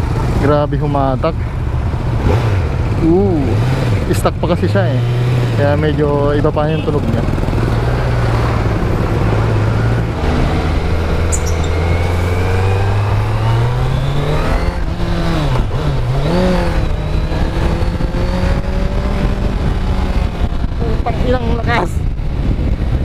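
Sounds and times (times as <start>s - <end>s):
motorcycle engine accelerating: 0.0s - 23.0s
wind on microphone: 7.3s - 23.0s.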